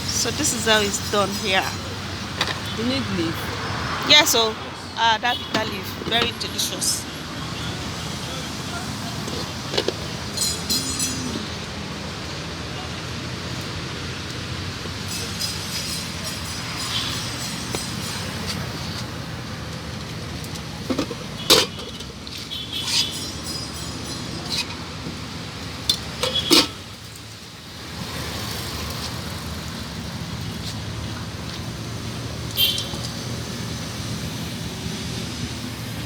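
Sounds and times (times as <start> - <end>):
dishware and utensils clinking: 5.5 - 7.0, 9.2 - 11.5, 22.8 - 24.9, 25.9 - 26.8.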